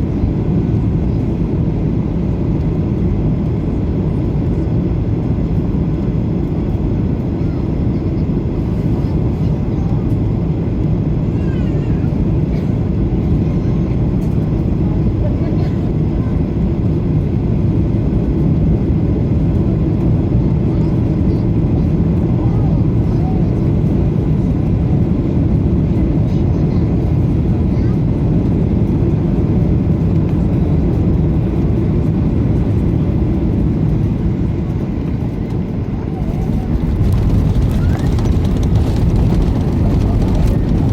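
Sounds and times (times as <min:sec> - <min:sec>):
jet engines rumbling: 0:00.0 - 0:40.9
rushing air: 0:36.2 - 0:40.9.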